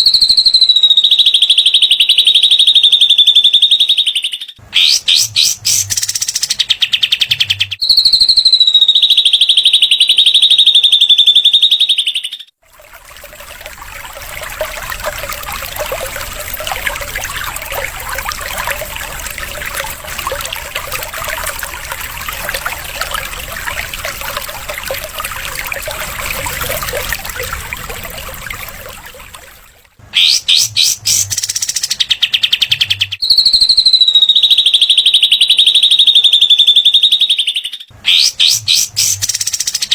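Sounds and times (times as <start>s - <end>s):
birds twittering: 2.8s - 8.0s, 10.9s - 34.5s, 36.0s - 39.9s
songbirds buzzing trills: 12.8s - 32.0s.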